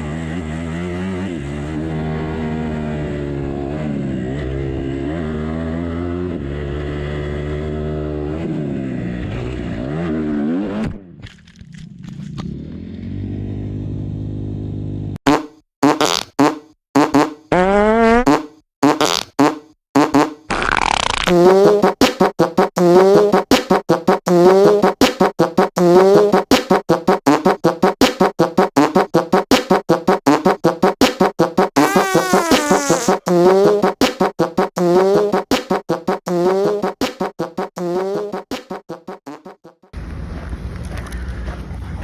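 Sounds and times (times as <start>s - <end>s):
dirt bike engine revving: 0.0s - 11.1s, 12.4s - 40.5s
buzzy horn-like tone bursts: 31.6s - 39.7s.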